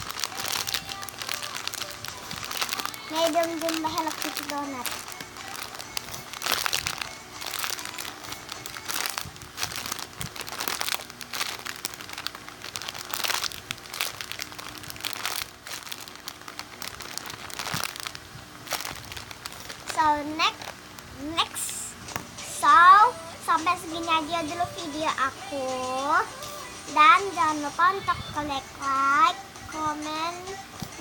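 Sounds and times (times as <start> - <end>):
plastic crinkling and rustling: 0.0 - 22.3.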